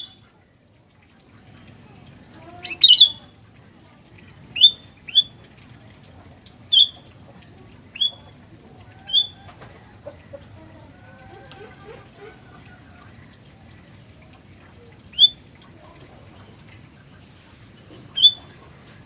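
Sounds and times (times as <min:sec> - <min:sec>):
faint bird twittering: 0:00.0 - 0:00.2, 0:02.6 - 0:03.3, 0:04.5 - 0:05.4, 0:06.7 - 0:07.2, 0:07.9 - 0:09.5, 0:14.8 - 0:15.4, 0:17.9 - 0:18.6
sharp high bird calls: 0:02.6 - 0:03.3, 0:04.6 - 0:05.3, 0:06.7 - 0:07.1, 0:08.0 - 0:08.3, 0:09.1 - 0:09.5, 0:15.1 - 0:15.4, 0:18.1 - 0:18.6.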